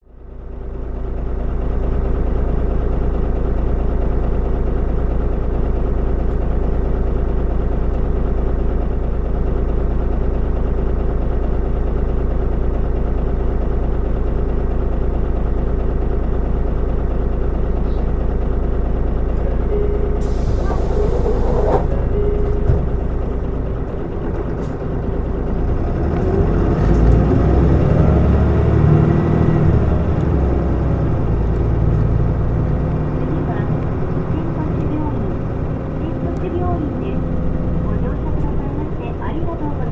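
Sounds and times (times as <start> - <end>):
diesel bus engine idling: 0.0 - 39.9
compressed air hiss: 20.2 - 22.0.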